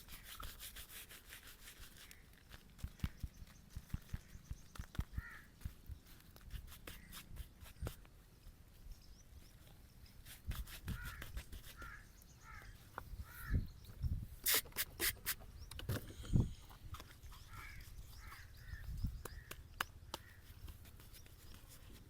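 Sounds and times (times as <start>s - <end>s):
straight razor scraping skin: 0.0s - 2.2s, 6.4s - 8.0s, 10.2s - 12.0s, 14.4s - 15.4s.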